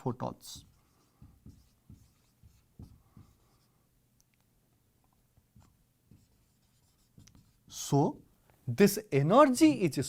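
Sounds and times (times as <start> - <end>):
pen or chalk writing taps: 0.5 - 3.6, 5.5 - 7.6.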